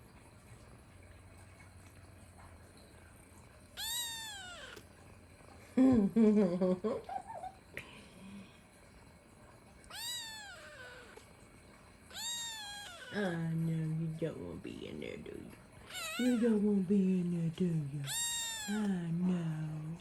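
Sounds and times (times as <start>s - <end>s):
cat meowing: 3.8s - 4.8s, 9.9s - 11.2s, 12.1s - 13.4s, 15.8s - 16.6s, 18.0s - 19.0s.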